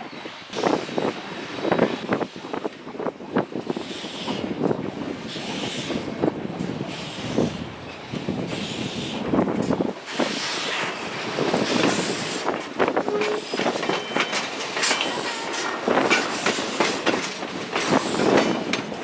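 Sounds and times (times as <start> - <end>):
steam hiss: 0.6 - 18.7
steam locomotive knocks and clanks: 8.1 - 19.0.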